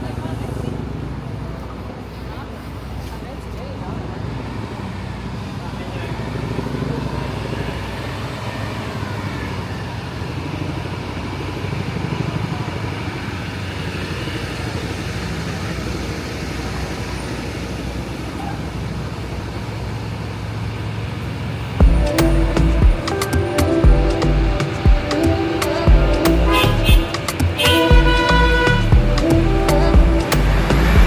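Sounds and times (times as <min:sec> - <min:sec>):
vehicles passing: 0:00.0 - 0:31.0
faint voices: 0:21.8 - 0:31.0.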